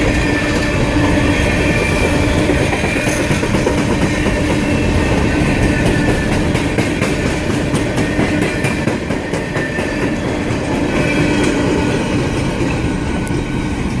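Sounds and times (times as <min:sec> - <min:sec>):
freight train rolling past: 0:00.0 - 0:14.0.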